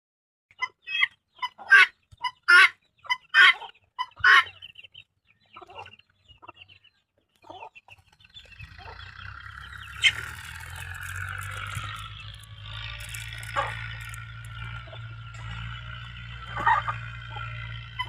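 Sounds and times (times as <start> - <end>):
chicken calling: 0.5 - 4.8, 7.4 - 18.0
chicken clucking: 0.5 - 18.0.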